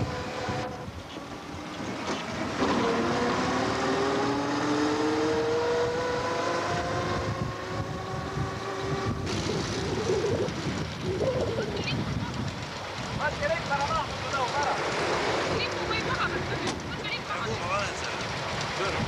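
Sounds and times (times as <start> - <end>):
car engine accelerating: 0.0 - 11.9
wind and road noise: 0.0 - 19.0.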